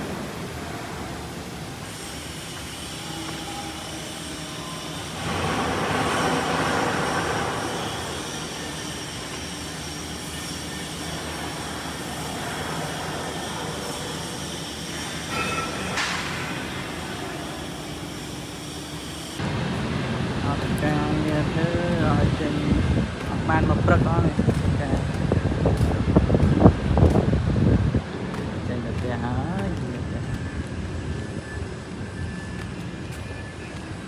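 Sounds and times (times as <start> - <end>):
industrial machinery noise: 0.0 - 34.0.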